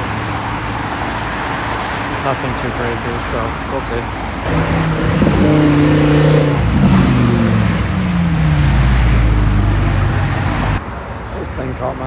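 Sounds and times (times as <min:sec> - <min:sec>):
car engine revving: 0:04.2 - 0:10.8.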